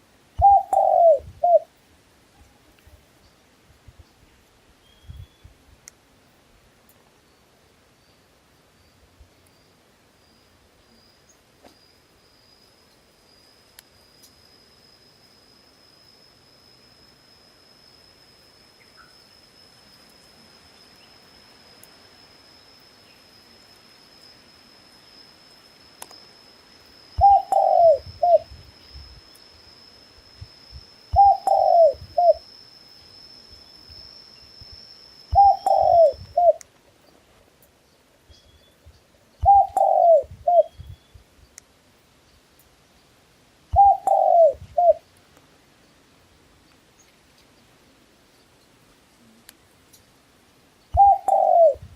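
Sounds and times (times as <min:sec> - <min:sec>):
faint high-pitched whine: 0:00.0 - 0:51.9
dove cooing: 0:00.4 - 0:01.7, 0:27.2 - 0:28.5, 0:31.1 - 0:32.4, 0:35.3 - 0:36.6, 0:39.4 - 0:40.8, 0:43.7 - 0:45.0, 0:51.0 - 0:51.9.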